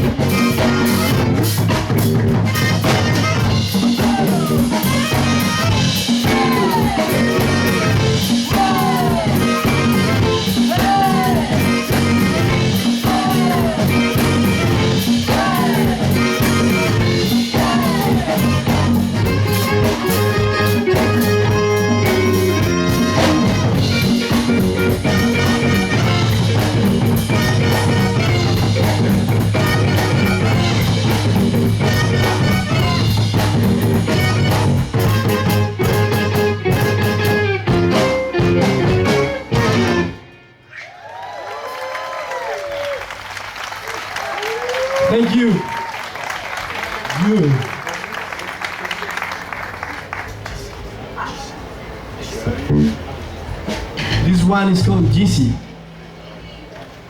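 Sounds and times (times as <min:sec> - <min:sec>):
guitar bending notes: 0:00.0 - 0:40.7, 0:52.6 - 0:57.0
live band playing: 0:00.0 - 0:40.8, 0:42.1 - 0:57.0.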